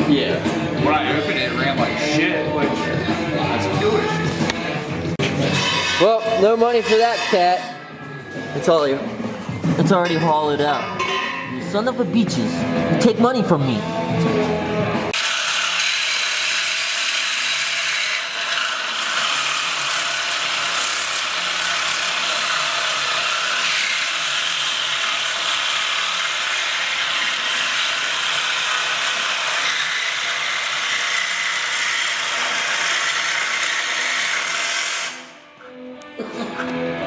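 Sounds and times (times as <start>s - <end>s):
power saw cutting metal pipe: 4.1s - 7.8s, 15.1s - 35.4s.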